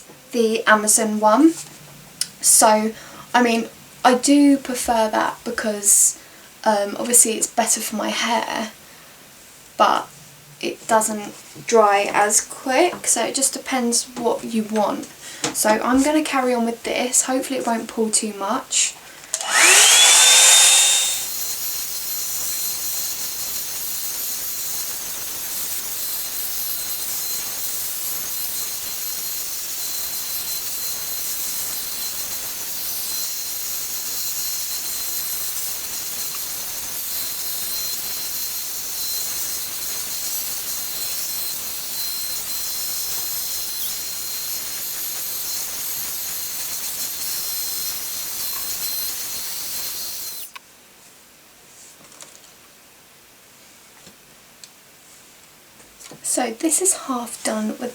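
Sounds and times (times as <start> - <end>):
hair dryer brush running: 19.3 - 22.0, 27.6 - 50.5.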